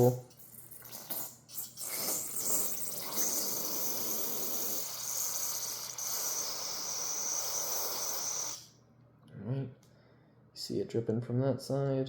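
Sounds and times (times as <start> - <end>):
aerosol spray hissing: 1.8 - 8.7.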